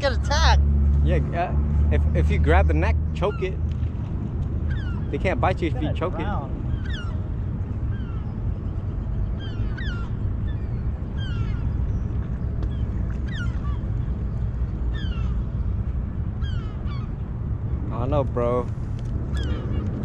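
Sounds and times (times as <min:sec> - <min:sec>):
seagull squawks: 0:04.7 - 0:07.3, 0:07.9 - 0:08.4, 0:09.3 - 0:12.0, 0:12.7 - 0:14.1, 0:14.8 - 0:15.6, 0:16.4 - 0:17.2, 0:19.3 - 0:20.0.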